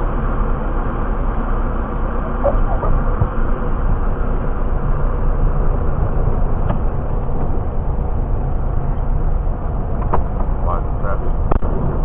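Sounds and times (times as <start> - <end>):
aircraft cabin engine drone: 0.0 - 12.0.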